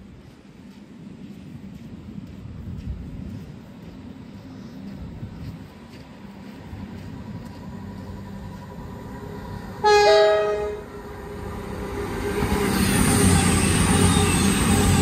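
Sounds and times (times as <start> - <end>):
train rumble passing: 0.0 - 15.0
two-tone train horn: 9.8 - 11.0.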